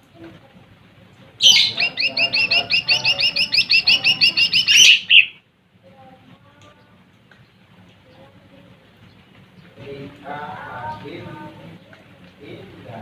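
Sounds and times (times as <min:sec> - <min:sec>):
small bird chirping rapidly: 0:01.4 - 0:05.4.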